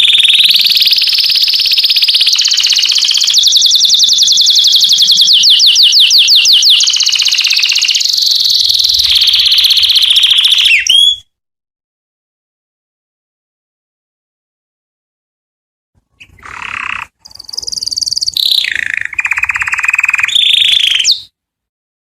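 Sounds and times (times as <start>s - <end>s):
canary singing trills: 0.0s - 11.2s, 16.1s - 21.3s.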